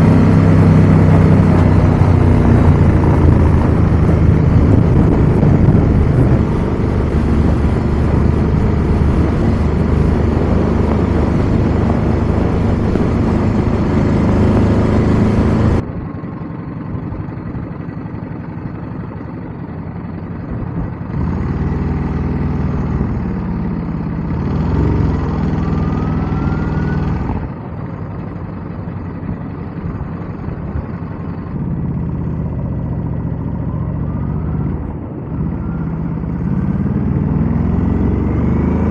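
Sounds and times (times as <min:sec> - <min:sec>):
wind noise on microphone: 0:00.0 - 0:15.9
motorcycle engine running: 0:00.0 - 0:38.9.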